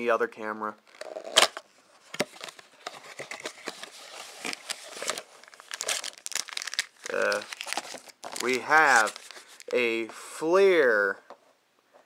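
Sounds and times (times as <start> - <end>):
plastic packaging crinkling: 2.2 - 10.0.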